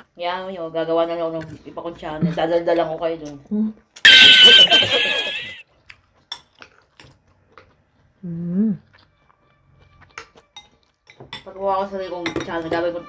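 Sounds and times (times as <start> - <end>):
loud laugh: 4.1 - 5.6
chewing: 5.7 - 8.2, 8.8 - 11.2.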